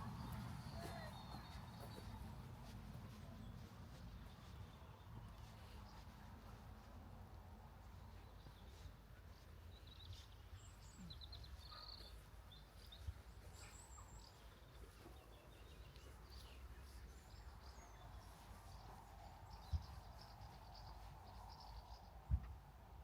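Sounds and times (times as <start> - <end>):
songbirds chirping: 0.0 - 23.0
soft thump: 22.3 - 22.6.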